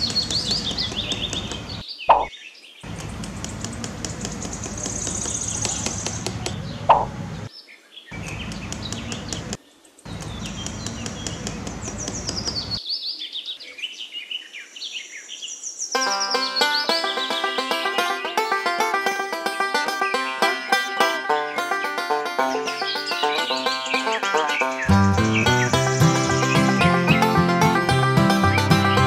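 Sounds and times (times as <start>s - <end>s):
small birds chirping: 0.0s - 29.0s
plucked banjo tune: 16.0s - 29.0s.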